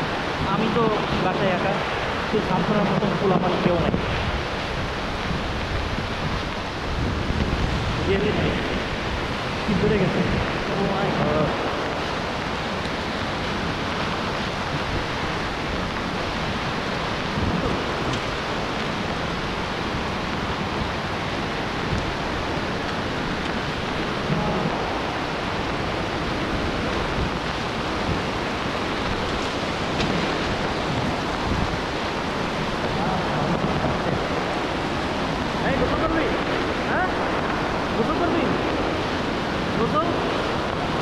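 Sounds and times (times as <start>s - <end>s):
heavy rain on trees and ground: 0.0s - 41.0s.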